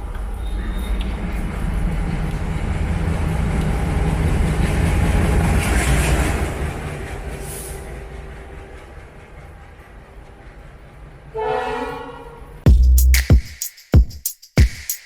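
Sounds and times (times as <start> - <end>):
train wheels rumbling on rails: 0.0 - 11.4.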